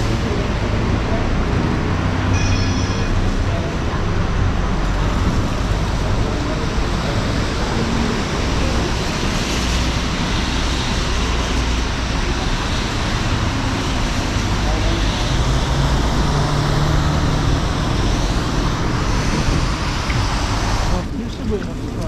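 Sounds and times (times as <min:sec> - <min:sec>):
cars passing: 0:00.0 - 0:22.0
traffic rumble: 0:00.0 - 0:22.0
high ringing squeal: 0:02.3 - 0:03.5.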